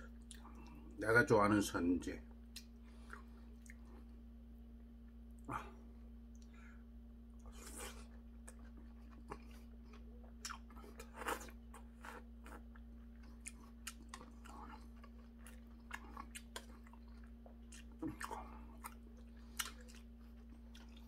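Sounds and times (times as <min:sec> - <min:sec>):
steady low hum: 0:00.0 - 0:21.0
person chewing: 0:02.5 - 0:04.1, 0:07.4 - 0:21.0.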